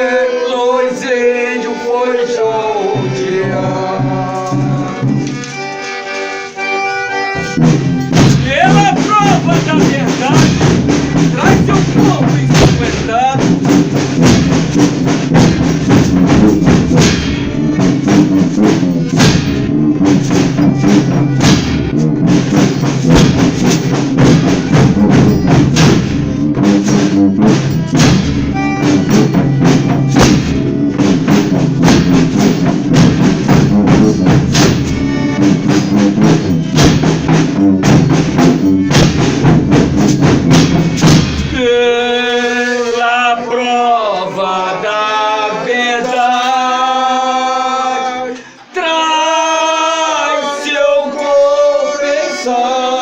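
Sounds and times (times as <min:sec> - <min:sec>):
drums beating: 0:02.5 - 0:43.1
tambourine-like percussion: 0:07.4 - 0:41.6
sustained instrument notes: 0:15.8 - 0:45.9.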